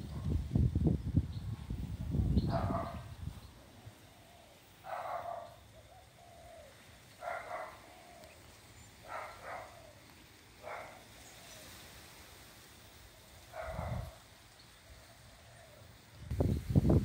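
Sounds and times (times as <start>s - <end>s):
bird calling: 2.5s - 11.8s.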